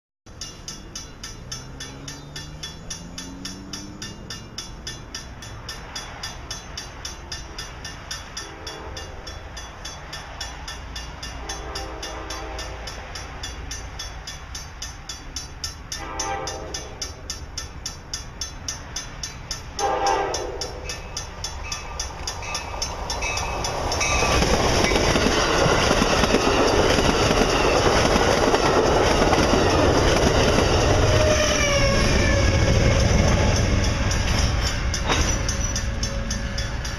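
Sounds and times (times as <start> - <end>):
train wheels rushing on rail: 0.3 - 36.9
train horn blasts: 8.4 - 9.5, 11.3 - 13.1, 15.9 - 17.2, 19.8 - 21.2, 29.5 - 36.9.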